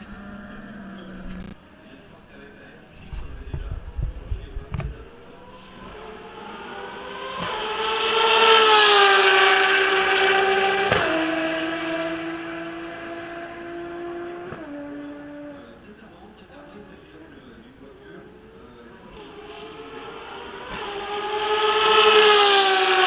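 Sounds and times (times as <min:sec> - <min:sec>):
race car passing at speed: 0:00.0 - 0:16.9, 0:18.3 - 0:23.0
wind buffeting on microphone: 0:03.0 - 0:05.1.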